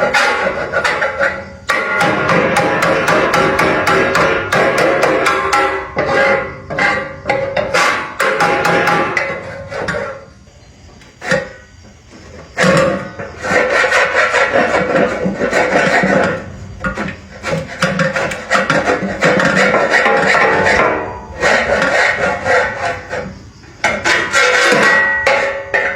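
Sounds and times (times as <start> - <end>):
rasping hand filing: 13.4 - 16.4, 21.4 - 23.4.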